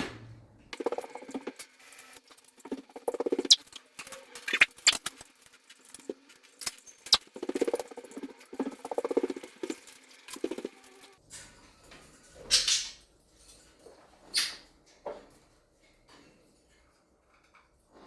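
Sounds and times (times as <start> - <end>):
buzzy rattling bursts: 0.8 - 11.2.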